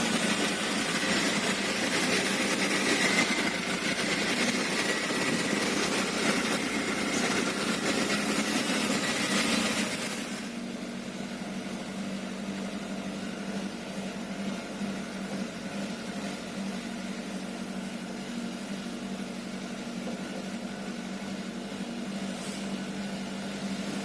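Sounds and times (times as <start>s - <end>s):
truck diesel engine running: 0.0s - 16.5s.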